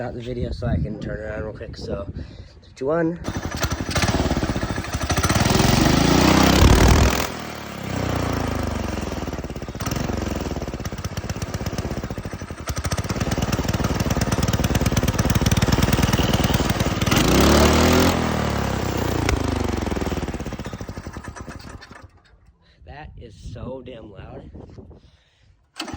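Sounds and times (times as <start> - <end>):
go-kart engine revving: 3.2 - 22.4.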